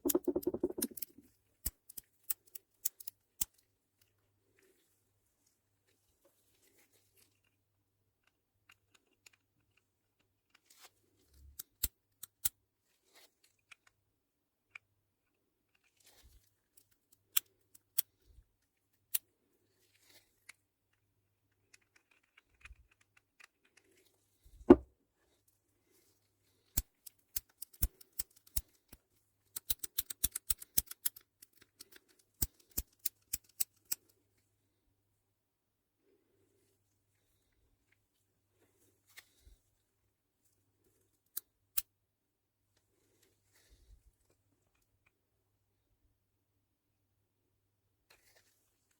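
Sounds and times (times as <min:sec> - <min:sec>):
small plastic parts clicking: 0:00.0 - 0:03.6, 0:08.2 - 0:10.7, 0:21.5 - 0:23.9, 0:26.8 - 0:34.2.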